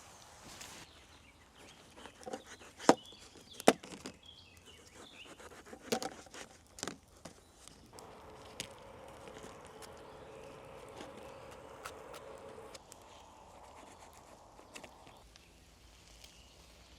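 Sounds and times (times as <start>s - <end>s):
sharp snaps and knocks: 2.1s - 4.2s.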